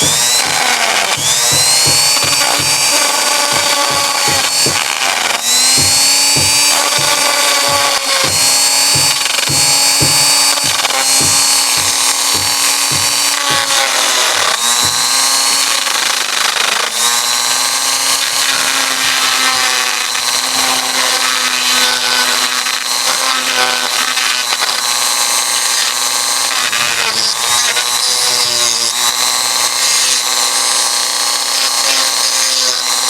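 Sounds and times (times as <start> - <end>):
regular clicks: 0.0 - 18.5
power tool motor running: 0.0 - 33.0.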